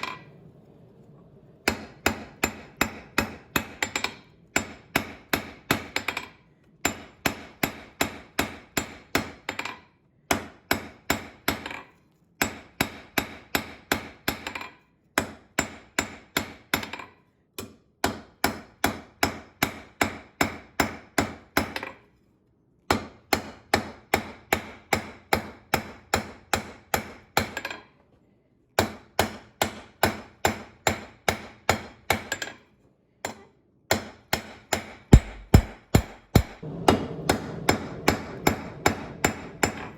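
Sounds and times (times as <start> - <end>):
hammer striking iron on anvil: 1.7 - 11.8, 12.4 - 17.1, 18.0 - 21.9, 22.9 - 27.8, 28.8 - 32.6, 33.2 - 39.9.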